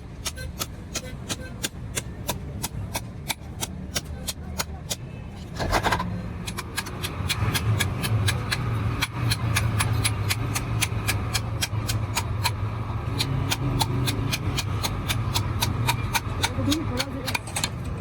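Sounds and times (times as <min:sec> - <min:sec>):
sharp metallic knocks: 0:05.6 - 0:18.0.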